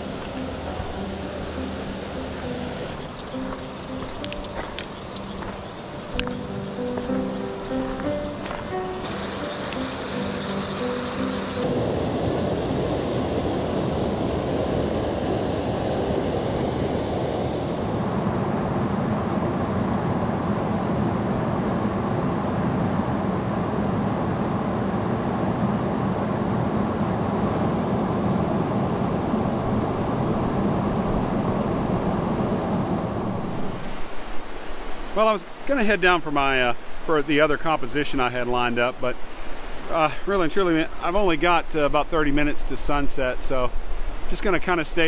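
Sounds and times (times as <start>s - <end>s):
river water over rapids: 0.0s - 13.0s, 29.3s - 45.0s.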